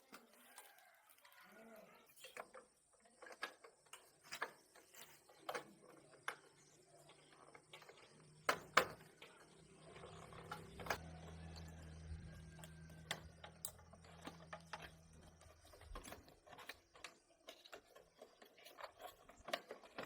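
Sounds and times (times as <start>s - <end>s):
low steady hum: 9.2s - 16.2s.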